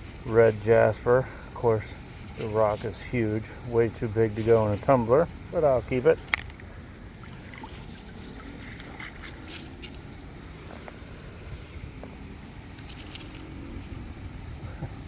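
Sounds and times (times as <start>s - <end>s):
outdoor background rumble: 0.0s - 15.0s
rocks clicking and scraping: 6.0s - 6.8s.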